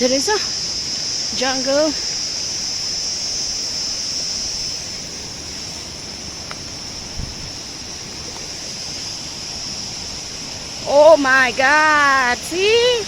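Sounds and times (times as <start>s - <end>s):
high-pitched insect chorus: 0.0s - 13.0s
rushing river: 0.0s - 13.0s.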